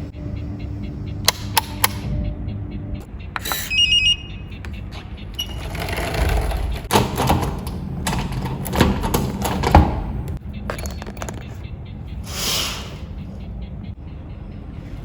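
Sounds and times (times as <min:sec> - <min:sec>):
short electronic beeps: 0:00.1 - 0:05.7.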